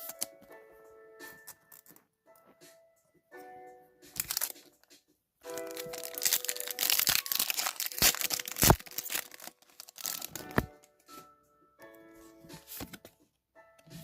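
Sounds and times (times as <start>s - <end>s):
background music: 0.0s - 14.0s
foil wrapper crinkling and tearing: 4.2s - 4.6s, 5.5s - 10.7s.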